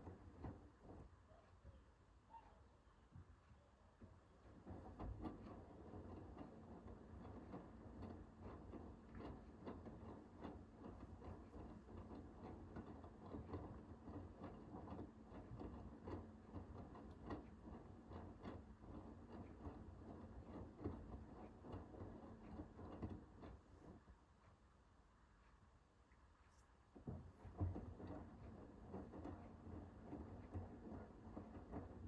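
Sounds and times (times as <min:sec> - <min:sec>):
laundry tumbling clicks and knocks: 0:00.0 - 0:01.8, 0:04.0 - 0:24.2, 0:26.9 - 0:32.0
washing machine motor hum: 0:00.0 - 0:32.0.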